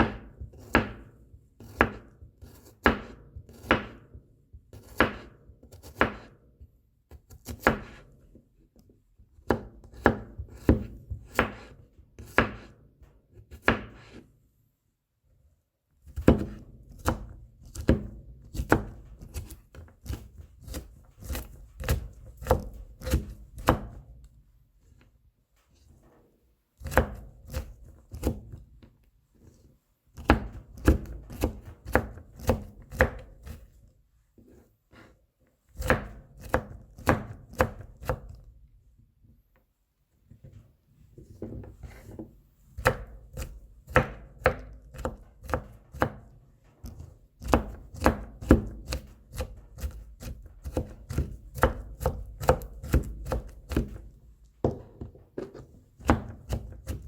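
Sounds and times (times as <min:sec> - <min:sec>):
knife chopping on cutting board: 0:00.0 - 0:06.4, 0:07.1 - 0:08.1, 0:09.4 - 0:12.8, 0:13.5 - 0:14.2, 0:16.0 - 0:24.0, 0:26.8 - 0:28.6, 0:30.2 - 0:33.7, 0:35.8 - 0:38.4, 0:41.4 - 0:57.0.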